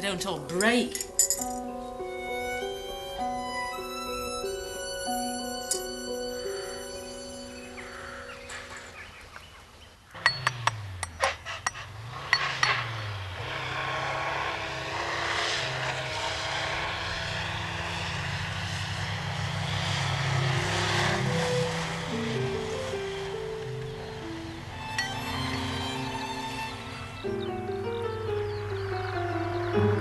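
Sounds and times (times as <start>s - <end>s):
sharp clanks and knocks: 10.1s - 13.1s, 25.0s - 25.6s
van engine starting and running: 10.1s - 30.0s.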